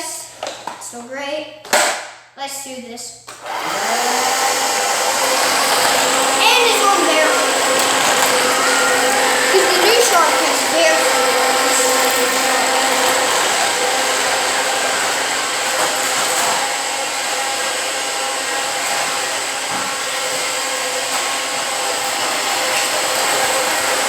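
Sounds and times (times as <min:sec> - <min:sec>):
vacuum cleaner running: 0:03.3 - 0:24.0.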